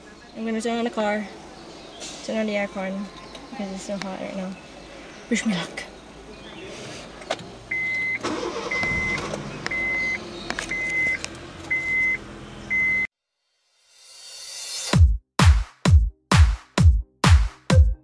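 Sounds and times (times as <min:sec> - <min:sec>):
car engine starting and idling: 0:07.1 - 0:13.1
dashboard warning chime beeping: 0:07.7 - 0:13.1.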